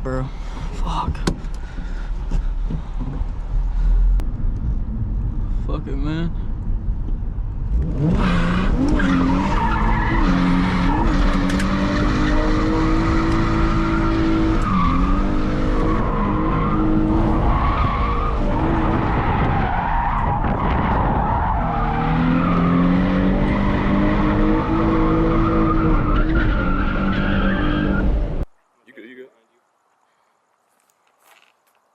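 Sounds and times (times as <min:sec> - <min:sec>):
car engine revving hard: 0:07.7 - 0:19.6, 0:20.6 - 0:28.4
tyres skidding and squealing: 0:07.7 - 0:28.4.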